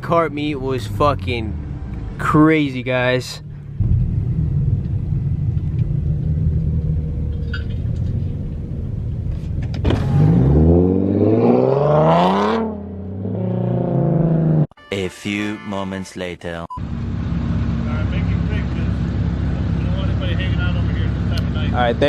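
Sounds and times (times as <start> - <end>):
car engine revving: 0.2 - 14.7.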